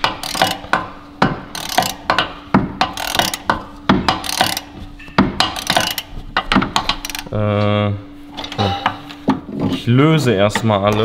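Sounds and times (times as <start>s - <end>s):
hand ratchet clicking: 0.0s - 0.9s, 1.5s - 4.8s, 5.4s - 7.4s.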